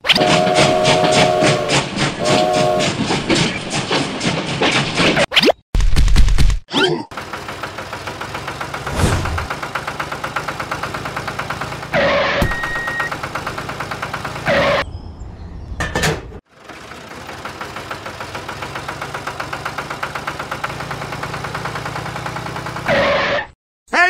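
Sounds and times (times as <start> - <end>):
diesel tractor engine idling: 7.1 - 12.0, 12.6 - 14.5, 16.5 - 22.9.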